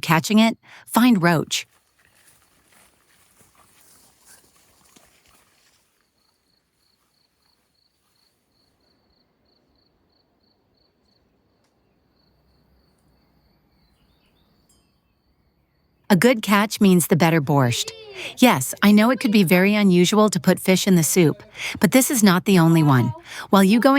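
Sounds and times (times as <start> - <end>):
cricket chirping: 4.3 - 16.1.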